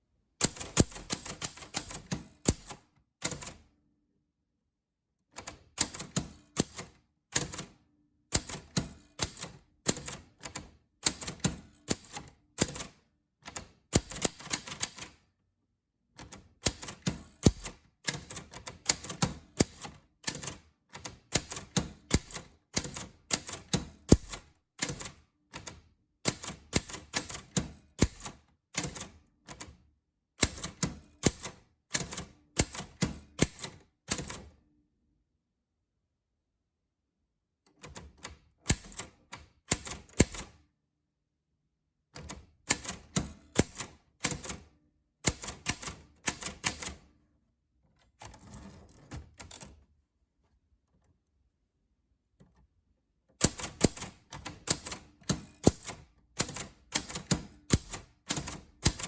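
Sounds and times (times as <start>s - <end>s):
typewriter keys clicking: 0.4s - 3.6s, 5.3s - 15.2s, 16.2s - 29.7s, 30.4s - 34.5s, 37.8s - 40.6s, 42.2s - 47.1s, 53.4s - 59.0s.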